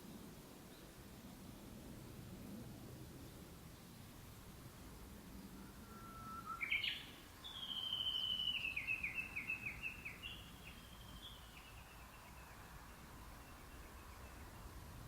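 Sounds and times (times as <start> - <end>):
bird call with repeated notes: 5.8 - 11.8.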